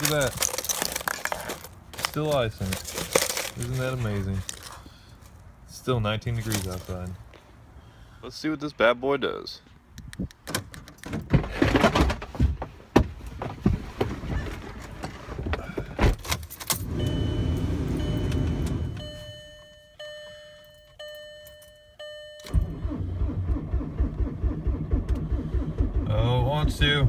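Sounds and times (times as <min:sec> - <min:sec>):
keys jangling: 0:00.0 - 0:02.1
dashboard chime ringing: 0:16.9 - 0:22.5
starter cranking diesel engine: 0:22.5 - 0:26.9.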